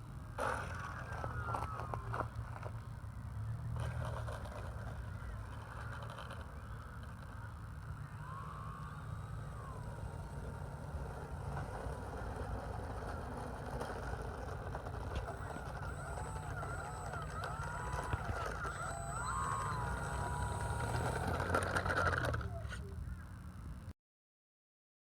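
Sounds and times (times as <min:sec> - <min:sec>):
model plane motor whine: 0:03.8 - 0:23.0.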